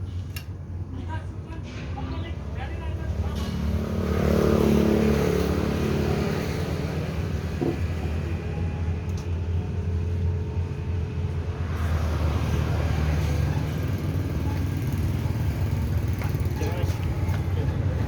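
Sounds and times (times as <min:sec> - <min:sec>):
low engine rumble: 0:05.4 - 0:18.0.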